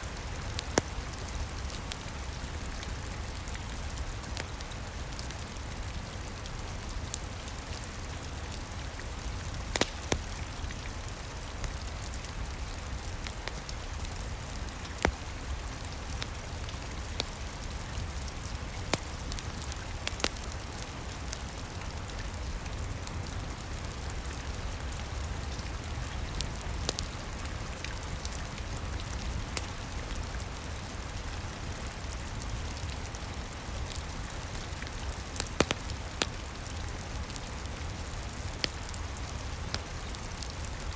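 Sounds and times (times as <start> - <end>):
steady rain: 0.0 - 40.9
wood fire crackling: 0.0 - 40.9
sharp pops of fire: 9.6 - 10.4, 18.8 - 19.4, 35.4 - 36.4.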